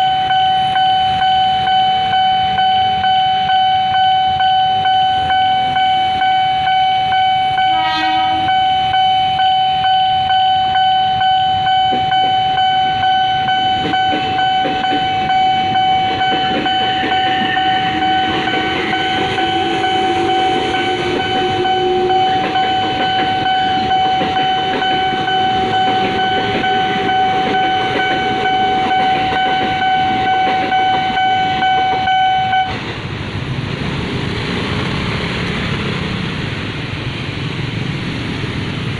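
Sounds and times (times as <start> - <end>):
level crossing warning tone: 0.0 - 32.8
train horn toot: 7.6 - 8.7, 16.8 - 23.9
train wheels clattering on rails: 11.6 - 38.9.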